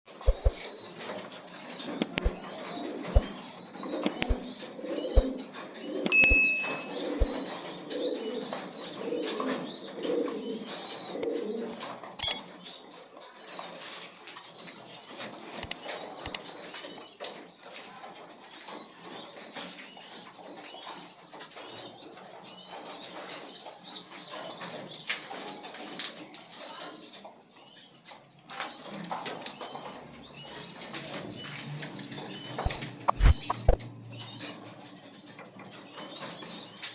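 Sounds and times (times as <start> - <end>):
wing flaps: 0.1 - 0.7, 1.9 - 7.4, 32.6 - 33.8
pigeons cooing: 0.1 - 12.6, 28.7 - 36.9
rapid high chirps: 0.2 - 0.6, 2.0 - 2.4, 4.1 - 4.4, 6.1 - 7.4, 32.6 - 33.8
sharp knocks: 0.3 - 0.6.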